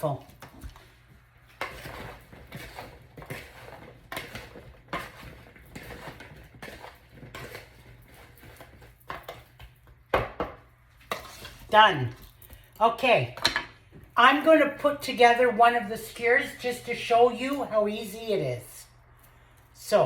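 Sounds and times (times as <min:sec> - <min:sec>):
wet rustling of vegetables in bowl: 0:00.1 - 0:10.1.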